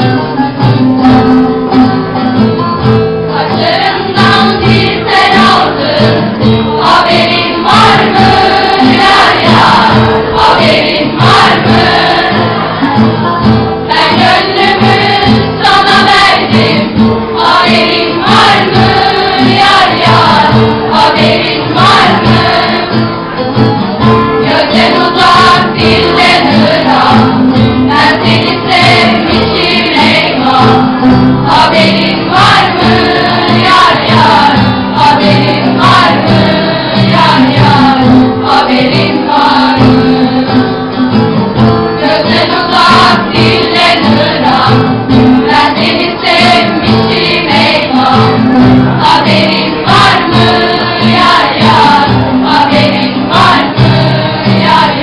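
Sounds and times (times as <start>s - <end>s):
song with singing voices: 0.0s - 55.0s.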